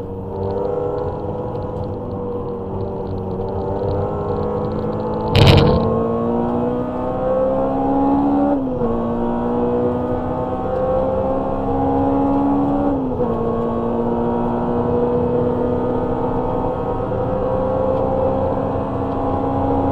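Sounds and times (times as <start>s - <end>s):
car engine accelerating with upshifts: 0.0s - 19.9s
sharp knock: 5.3s - 6.1s.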